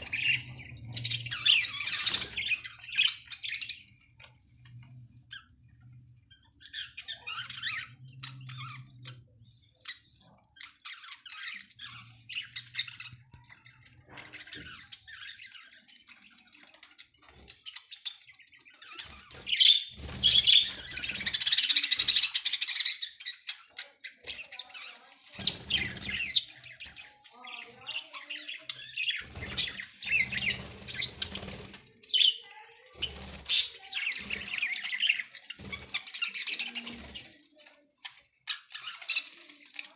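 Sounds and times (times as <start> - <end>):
budgerigars chirping: 0.0 - 4.1, 6.4 - 13.2, 17.5 - 37.4.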